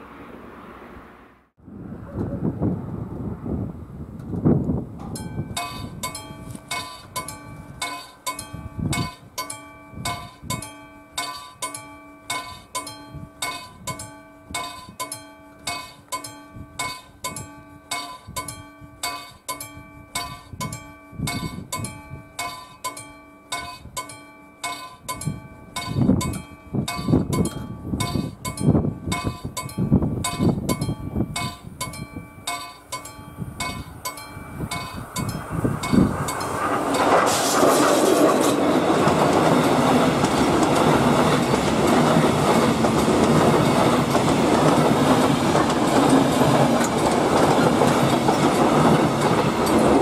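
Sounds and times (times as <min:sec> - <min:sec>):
low rumbling noise: 0:00.0 - 0:06.1
level crossing warning bell: 0:05.0 - 0:37.2, 0:38.7 - 0:50.0.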